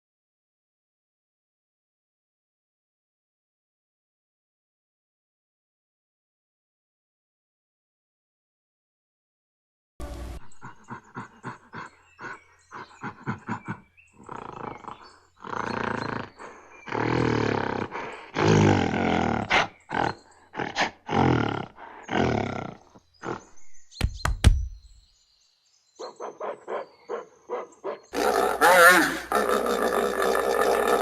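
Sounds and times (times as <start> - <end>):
big cat roaring and grunting: 10.6 - 23.7, 28.1 - 31.0
sharp knock: 24.0 - 24.8.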